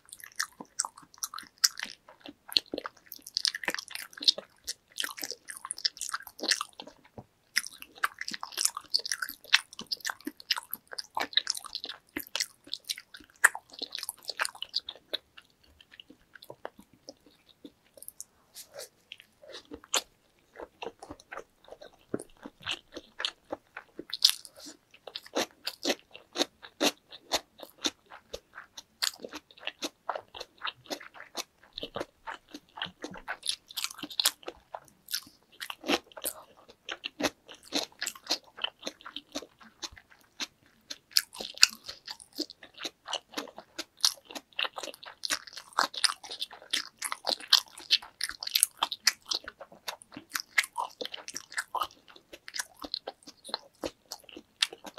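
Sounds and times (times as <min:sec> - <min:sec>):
chewing and biting: 0:00.0 - 0:54.9.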